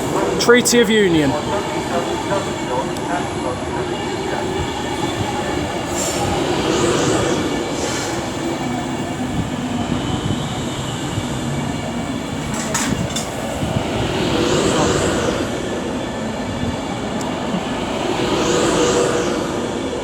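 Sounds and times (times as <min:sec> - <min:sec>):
electric train rail rumble: 0:00.0 - 0:20.0.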